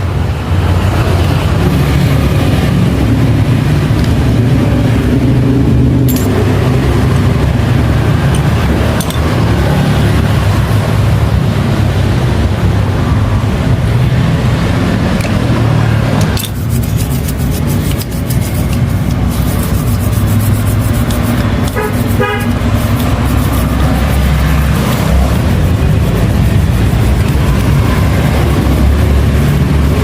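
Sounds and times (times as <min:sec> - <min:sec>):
motorcycle engine running: 0:14.9 - 0:30.0.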